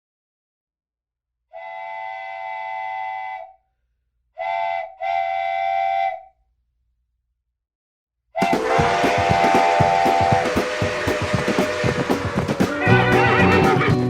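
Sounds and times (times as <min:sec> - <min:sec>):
model train whistle blowing: 0:01.6 - 0:03.6, 0:04.4 - 0:06.3, 0:08.4 - 0:14.0.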